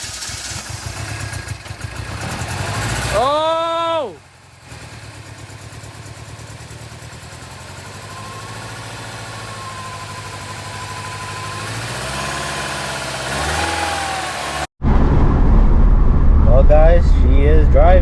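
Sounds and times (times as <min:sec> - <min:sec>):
car engine running: 0:00.0 - 0:18.0
car engine revving: 0:00.1 - 0:03.5, 0:07.5 - 0:18.0
low rumble of car driving: 0:04.2 - 0:18.0.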